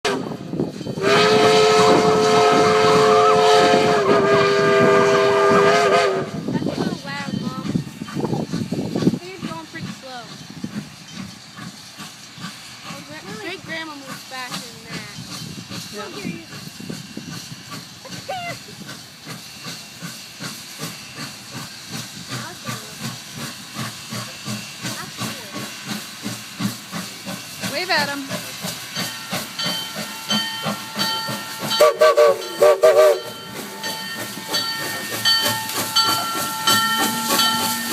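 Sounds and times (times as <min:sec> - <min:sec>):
passenger train rushing past: 0:00.0 - 0:37.9
train wheels clacking on rail joints: 0:00.6 - 0:18.2, 0:18.8 - 0:37.9
locomotive air horn blast: 0:01.0 - 0:06.4, 0:31.7 - 0:33.4.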